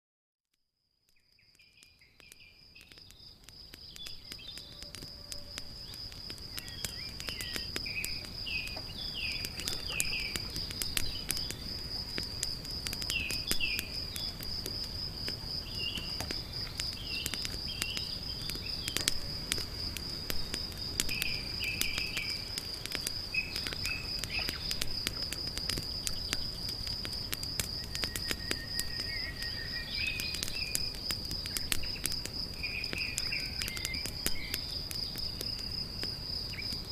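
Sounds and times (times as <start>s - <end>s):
insect chirps: 0.6s - 36.9s
campfire crackling and popping: 1.0s - 36.9s
high insect trill: 1.2s - 36.9s.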